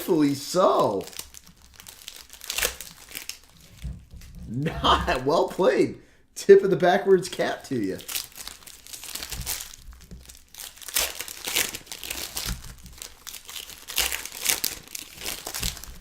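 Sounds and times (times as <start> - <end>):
plastic wrappers crinkling: 0.7 - 3.8, 7.9 - 16.0.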